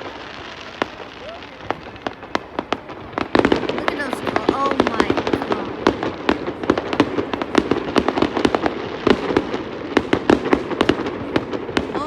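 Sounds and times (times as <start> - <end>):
fireworks bangs and pops: 0.0 - 12.0.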